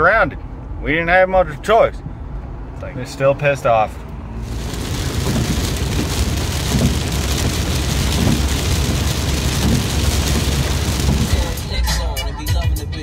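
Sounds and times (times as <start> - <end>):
car engine rumble: 3.9 - 13.0
heavy rain drumming on car: 4.4 - 12.0.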